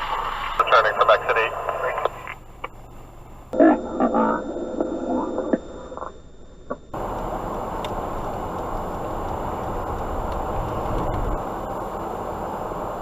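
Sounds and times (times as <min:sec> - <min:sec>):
scanner radio clicks: 0:00.5 - 0:04.2, 0:04.8 - 0:13.0
wind rumbling on microphone: 0:07.0 - 0:13.0.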